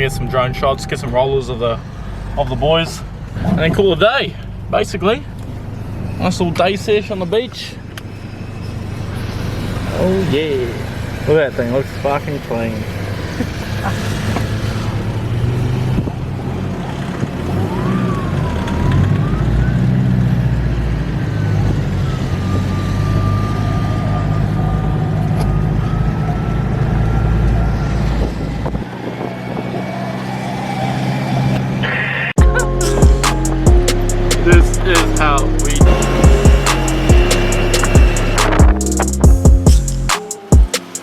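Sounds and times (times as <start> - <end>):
four-wheel-drive engine running: 2.4 - 40.1
thin high whine: 32.4 - 39.2.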